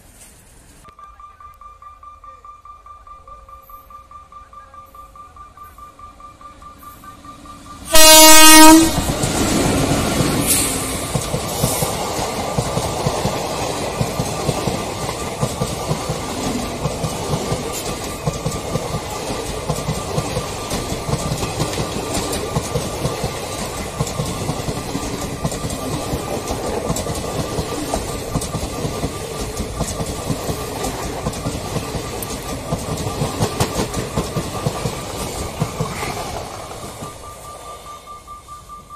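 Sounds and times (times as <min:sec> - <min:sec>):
train wheels rumbling on rail: 0:05.8 - 0:38.9.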